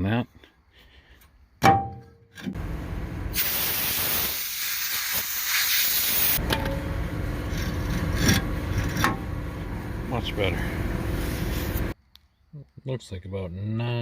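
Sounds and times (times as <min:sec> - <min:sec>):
loud hiss of escaping gas: 0:03.3 - 0:06.4
engine running steadily: 0:06.4 - 0:12.0.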